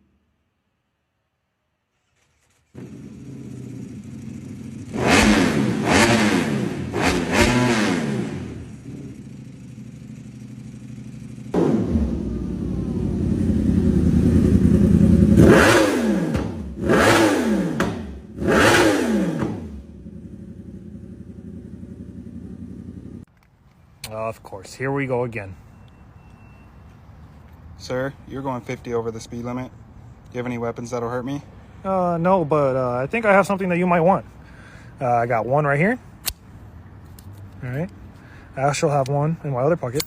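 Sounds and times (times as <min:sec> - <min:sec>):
motorcycle engine revving: 0:02.4 - 0:23.3.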